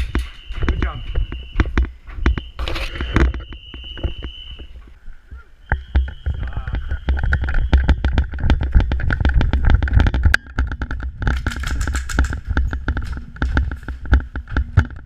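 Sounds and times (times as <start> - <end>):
airsoft guns firing: 11.3 - 13.2.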